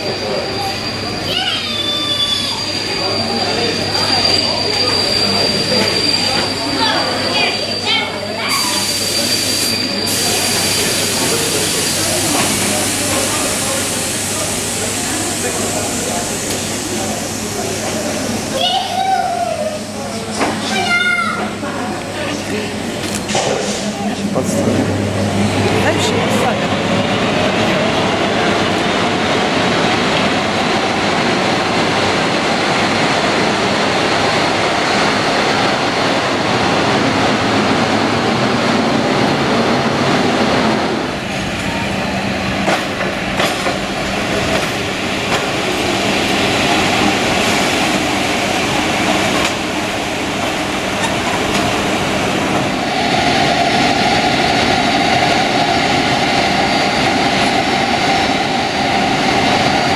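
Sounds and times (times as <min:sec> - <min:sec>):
train engine and wheel noise: 0:00.0 - 0:59.9.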